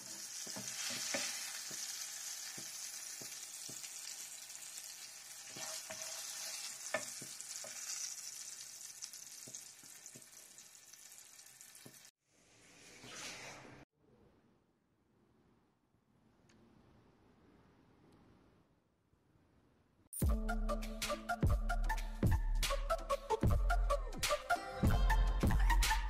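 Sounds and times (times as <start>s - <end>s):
slices frying in hot oil: 0.0s - 12.1s.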